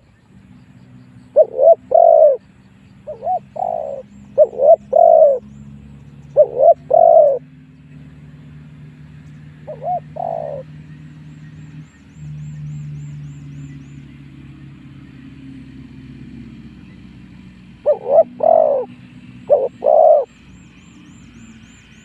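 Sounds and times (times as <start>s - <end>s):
dove cooing: 1.3s - 2.4s, 3.1s - 5.4s, 6.3s - 7.4s, 9.6s - 10.8s, 17.8s - 20.4s.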